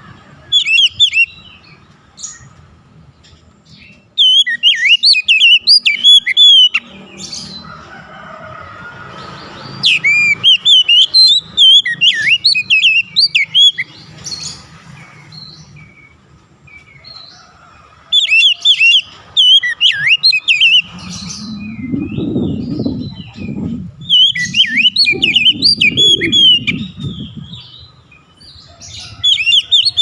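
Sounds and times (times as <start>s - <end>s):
magpie-robin singing whistled notes: 0.5s - 2.5s, 3.7s - 7.6s, 9.7s - 14.6s, 18.1s - 30.0s
soft bird calls: 9.2s - 30.0s
low muffled noise: 20.6s - 27.7s.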